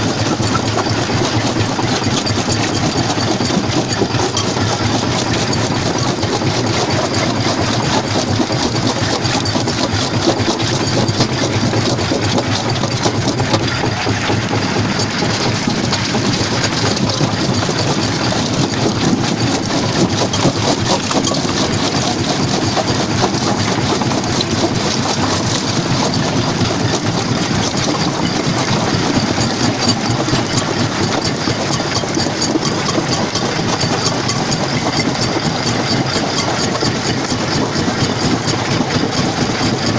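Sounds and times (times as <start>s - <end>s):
crusher machine rumble: 0.0s - 39.9s
rock crushing rattle: 0.0s - 39.9s.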